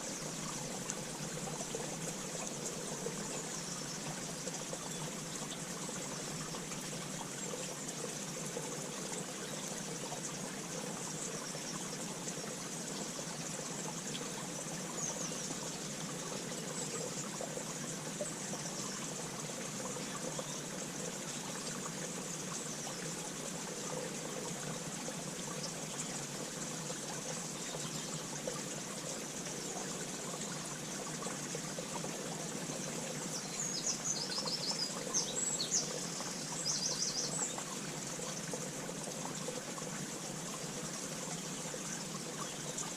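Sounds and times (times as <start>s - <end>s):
rushing water: 0.0s - 42.9s.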